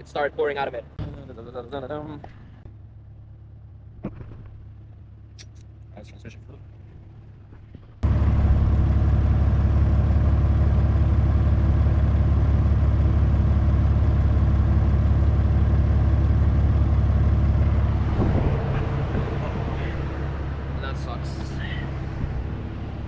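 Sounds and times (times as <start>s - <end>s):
vehicle engine low drone: 0.0s - 23.0s.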